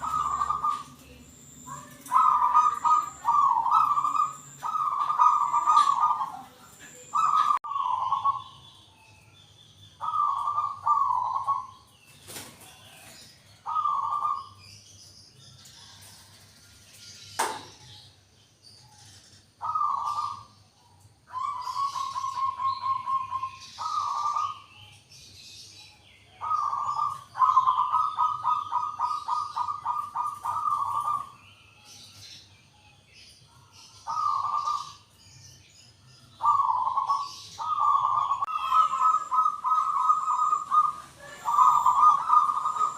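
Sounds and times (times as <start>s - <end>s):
dove cooing with rolling trills: 0.0s - 8.6s, 10.0s - 14.6s, 19.0s - 24.9s, 26.3s - 31.4s, 33.7s - 35.2s, 36.3s - 42.9s
small birds chirping faintly: 0.0s - 42.9s.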